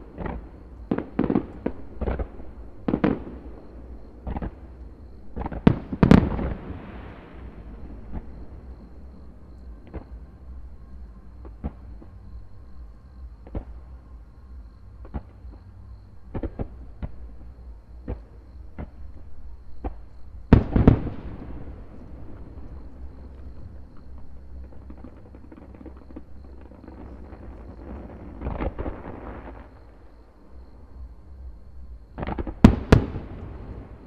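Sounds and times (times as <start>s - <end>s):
fireworks bangs: 19.8s - 29.9s
loud firework boom with echo: 20.5s - 22.6s.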